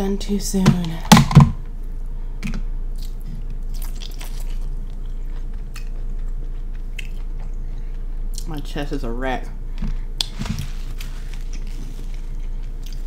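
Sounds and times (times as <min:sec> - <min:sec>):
steady low hum: 0:00.0 - 0:13.0
person chewing food: 0:02.9 - 0:08.5, 0:09.9 - 0:13.0.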